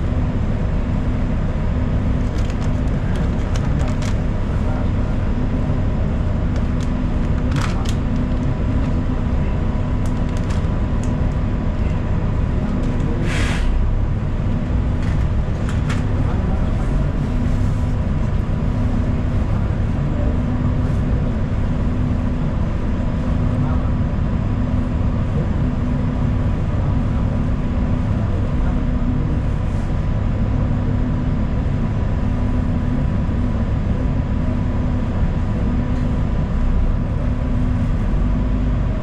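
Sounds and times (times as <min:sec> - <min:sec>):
bus engine and road rumble: 0:00.0 - 0:39.0
short hiss: 0:13.2 - 0:13.8.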